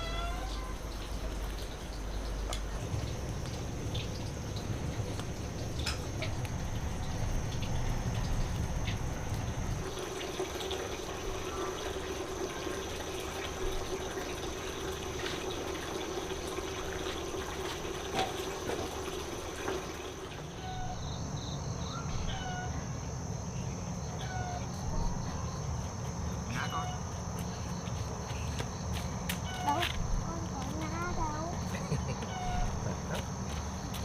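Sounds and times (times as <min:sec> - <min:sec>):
water running into a container: 0:00.0 - 0:21.2
high insect drone: 0:00.0 - 0:34.0.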